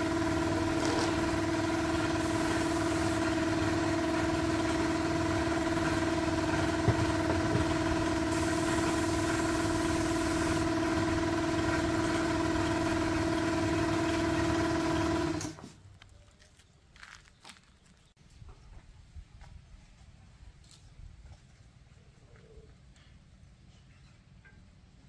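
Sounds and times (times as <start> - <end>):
car engine running: 0.0 - 15.4.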